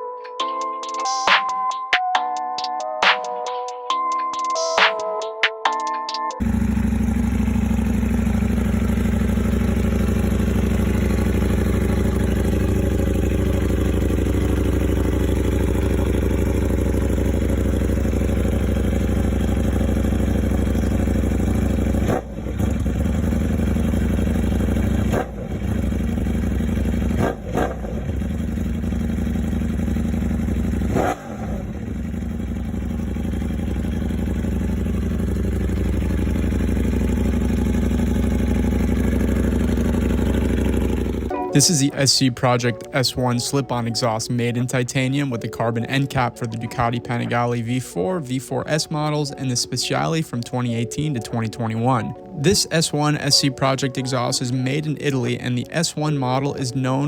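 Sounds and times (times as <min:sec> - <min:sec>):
motorcycle engine idling: 0:06.4 - 0:41.4
motorcycle engine revving: 0:06.4 - 0:41.4.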